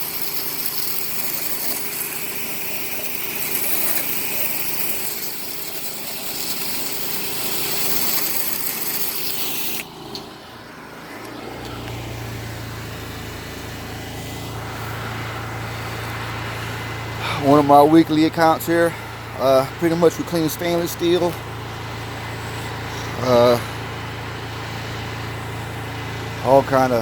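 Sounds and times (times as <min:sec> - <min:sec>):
engine running: 0:00.0 - 0:27.0
pressure washer water jet hiss: 0:00.0 - 0:27.0.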